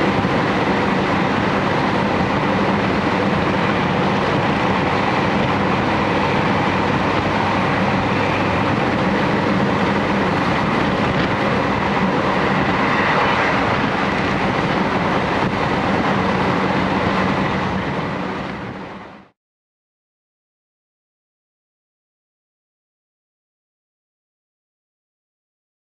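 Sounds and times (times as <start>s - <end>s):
electric train running: 0.0s - 19.3s.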